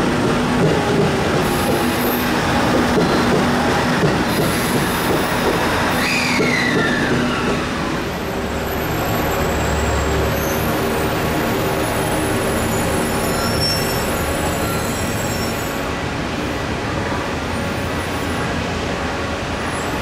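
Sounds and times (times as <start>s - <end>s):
train wheels clattering on rails: 0.0s - 8.3s.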